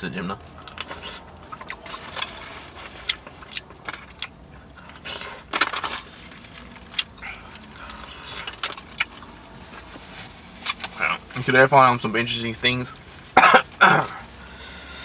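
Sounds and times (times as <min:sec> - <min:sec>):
person chewing: 0:00.6 - 0:10.0.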